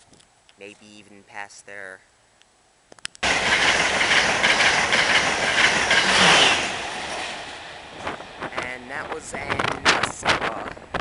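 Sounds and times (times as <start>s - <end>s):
high-speed train passing: 3.2s - 11.0s.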